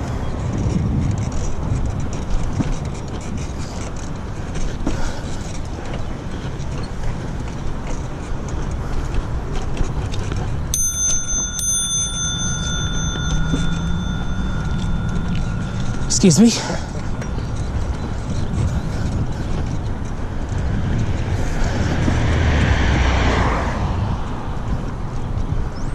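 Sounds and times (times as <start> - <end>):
wind on microphone: 0.0 - 4.6, 6.0 - 25.9
bicycle tyre rumble: 0.0 - 25.9
high-pitched ringing tone: 10.8 - 18.8.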